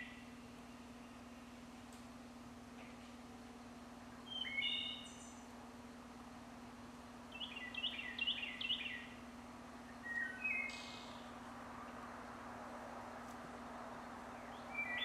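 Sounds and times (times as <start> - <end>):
steady low hum: 0.0 - 15.0
songbird whistling: 4.2 - 5.4, 7.3 - 9.2, 9.9 - 11.3, 14.4 - 15.0.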